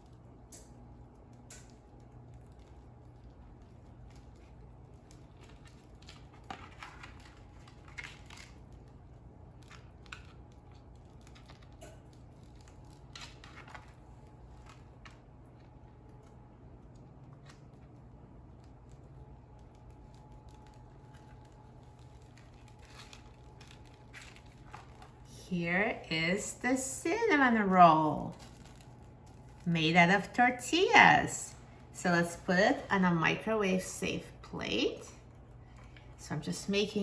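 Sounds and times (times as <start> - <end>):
low room hum: 0.0 - 37.0.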